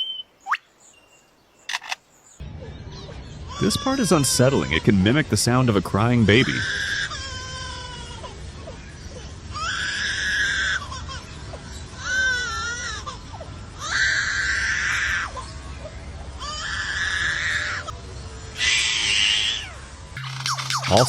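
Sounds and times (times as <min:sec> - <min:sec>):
bird mimicking baby crying: 0:03.4 - 0:04.8, 0:06.4 - 0:11.4, 0:12.0 - 0:15.6.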